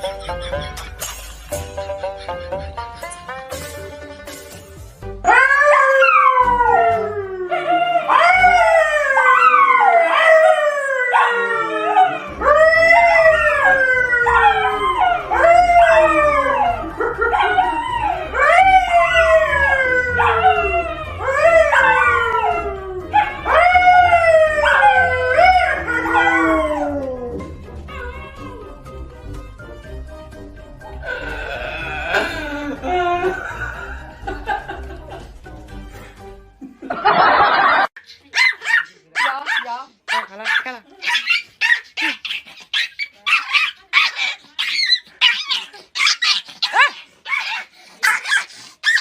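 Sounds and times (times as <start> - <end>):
dog howling: 5.3 - 28.8.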